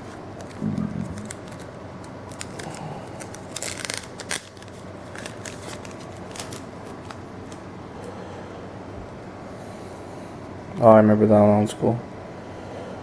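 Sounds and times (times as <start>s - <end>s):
cards flipping and rustling: 0.4s - 7.6s.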